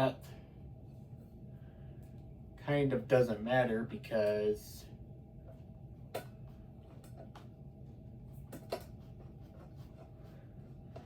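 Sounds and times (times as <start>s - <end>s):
steady low hum: 0.0s - 11.0s
clicks and taps of fan parts: 8.4s - 9.0s.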